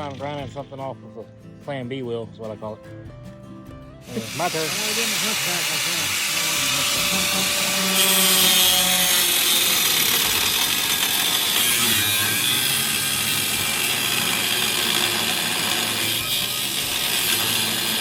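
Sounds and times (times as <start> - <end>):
power grinder grinding metal: 4.0 - 18.0.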